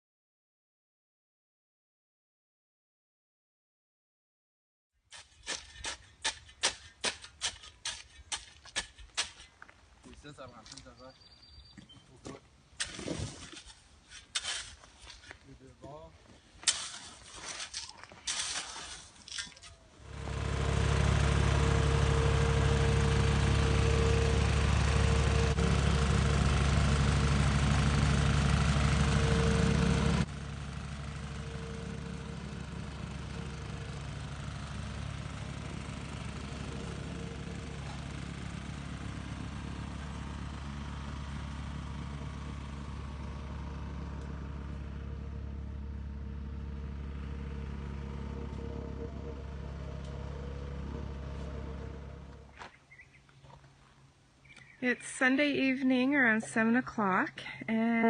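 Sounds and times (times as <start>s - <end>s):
engine running with faint whine: 19.3s - 58.0s.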